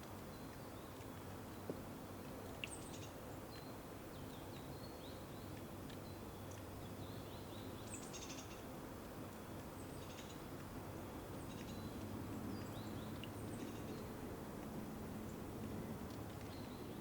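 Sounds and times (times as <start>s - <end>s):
small birds chirping: 2.5s - 8.6s, 9.6s - 10.4s, 11.2s - 14.2s, 16.1s - 17.0s.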